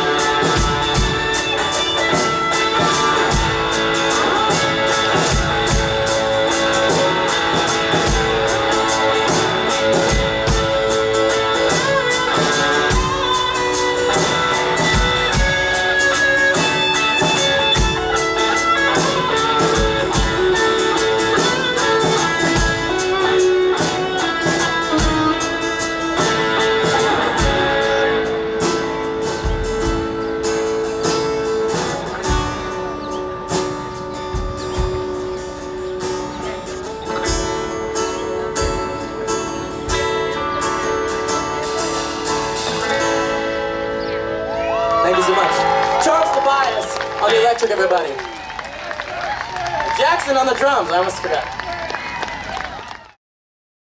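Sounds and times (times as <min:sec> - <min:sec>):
electric guitar lead: 0:00.0 - 0:51.6
drums: 0:00.0 - 0:52.7.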